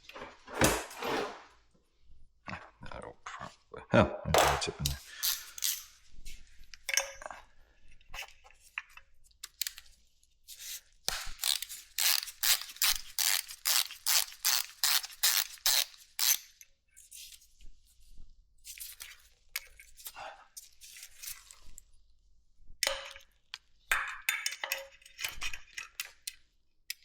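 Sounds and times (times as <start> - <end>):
hand ratchet clicking: 4.9 - 5.9, 11.2 - 16.4.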